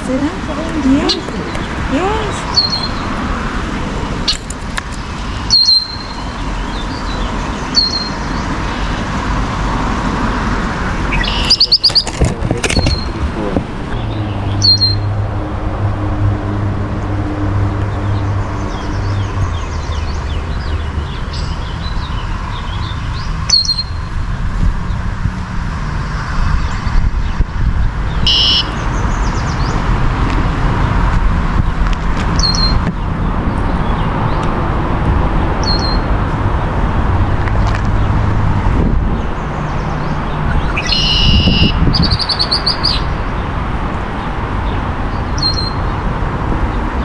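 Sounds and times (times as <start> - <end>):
low background rumble: 0.0 - 7.6
songbird chirping: 0.0 - 8.9, 11.0 - 13.2, 28.2 - 29.9, 39.8 - 43.2.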